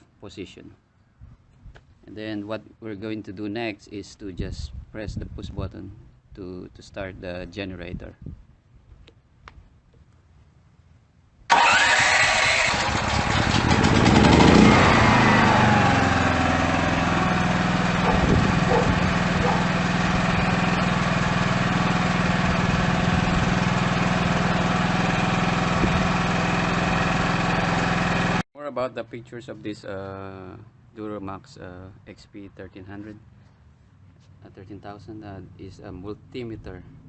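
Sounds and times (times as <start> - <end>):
portable generator engine running: 11.5 - 28.4.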